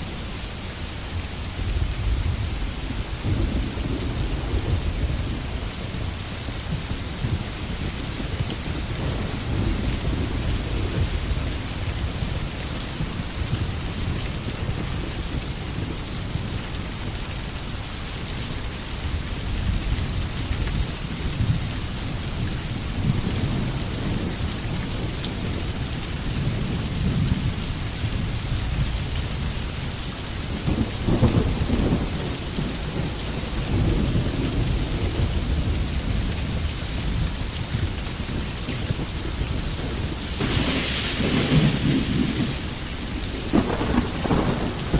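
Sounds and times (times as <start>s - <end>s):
steady rain falling: 0.0s - 44.9s
rolling thunder: 1.6s - 16.0s, 30.5s - 44.9s.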